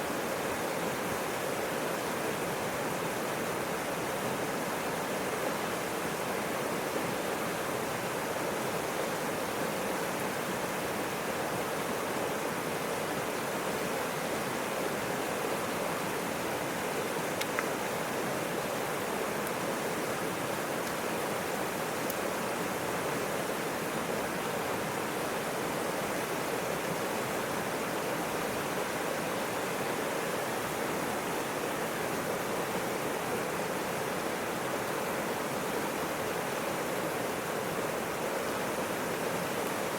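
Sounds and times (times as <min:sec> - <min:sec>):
river water rushing: 0:00.0 - 0:39.9
faint click: 0:17.4 - 0:17.8.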